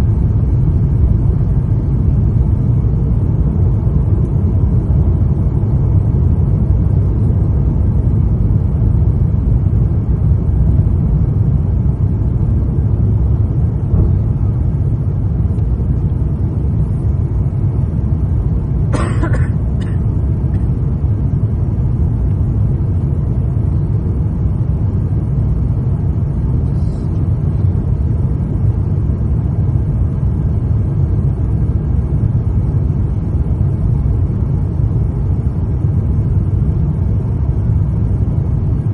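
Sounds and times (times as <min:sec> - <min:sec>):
aircraft cabin engine rumble: 0:00.0 - 0:38.9
brief sharp cough-like sound: 0:18.9 - 0:20.1.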